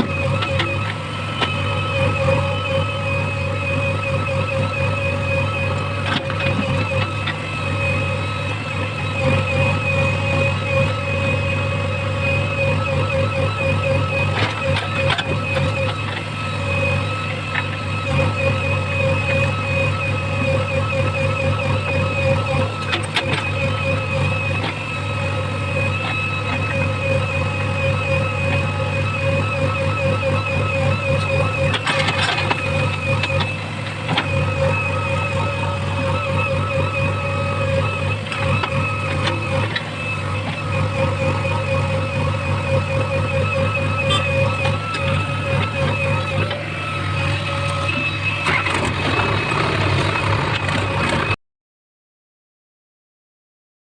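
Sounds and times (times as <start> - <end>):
diesel engine running: 0.0 - 51.4.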